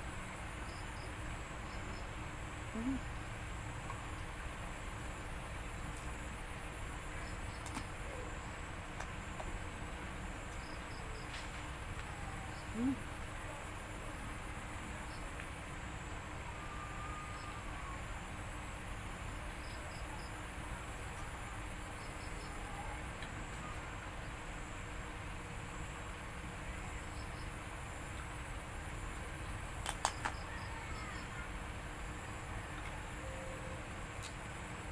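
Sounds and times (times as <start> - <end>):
insects droning: 0.0 - 34.9.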